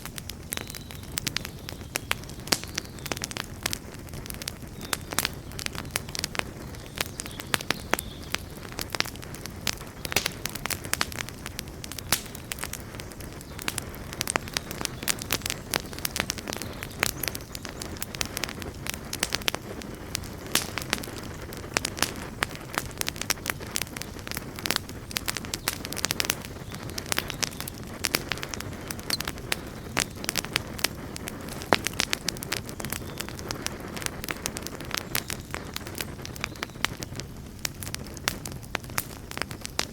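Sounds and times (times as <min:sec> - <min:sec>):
campfire burning: 0:00.0 - 0:39.9
fire crackling and popping: 0:00.0 - 0:39.9.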